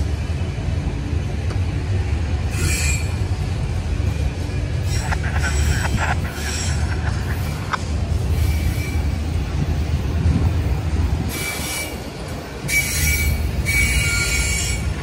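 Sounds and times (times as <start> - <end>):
freight train wheels rumbling: 0.0 - 15.0
high wheel squeals: 2.5 - 3.4, 11.3 - 15.0.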